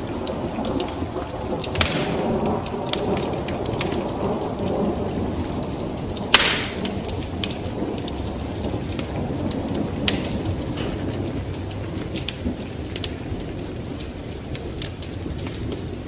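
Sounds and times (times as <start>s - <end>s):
fire crackles: 0.0s - 16.0s
low rumble of flames: 0.0s - 16.0s
loud fire pop: 1.7s - 4.0s, 6.3s - 7.5s.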